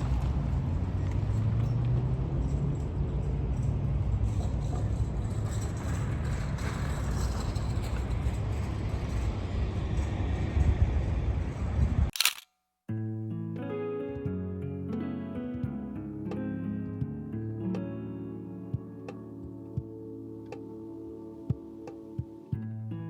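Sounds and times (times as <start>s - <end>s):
large engine droning: 0.0s - 12.1s.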